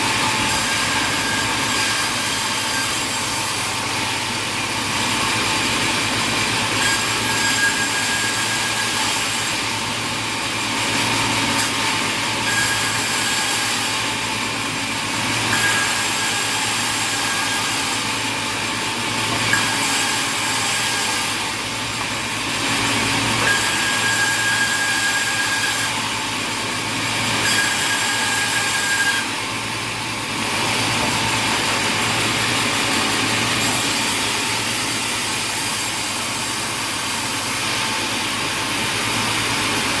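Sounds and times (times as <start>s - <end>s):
thin high saw whine: 0.0s - 3.9s, 5.9s - 9.7s, 10.9s - 14.2s, 15.4s - 18.0s, 19.2s - 21.4s, 23.0s - 29.4s
sawmill saw machinery humming: 0.0s - 40.0s.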